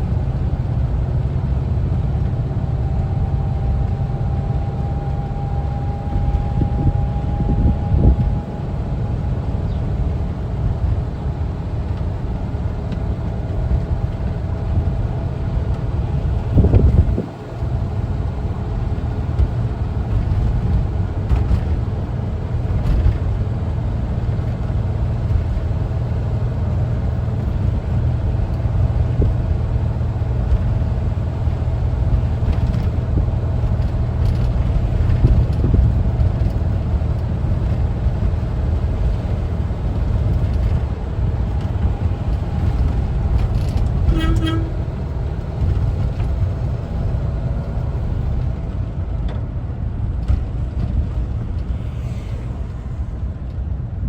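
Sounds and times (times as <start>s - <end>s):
engine rumbling under way: 0.0s - 54.0s
road noise: 0.0s - 54.0s.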